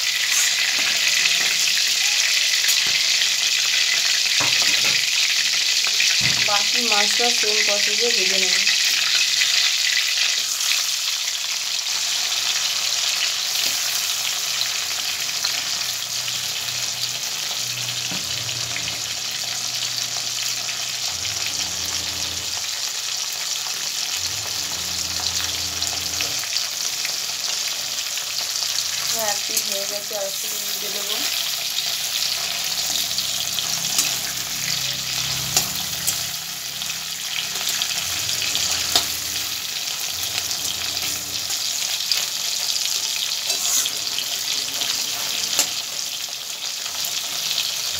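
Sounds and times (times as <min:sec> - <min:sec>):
prawns sizzling in oil: 0:00.0 - 0:47.9.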